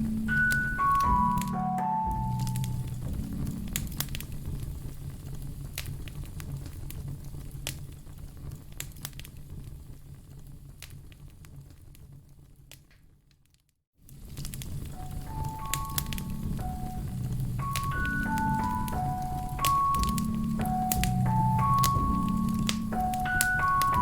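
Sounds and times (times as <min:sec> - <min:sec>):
low rumble: 0:00.0 - 0:06.6
wood fire crackling: 0:00.0 - 0:24.0.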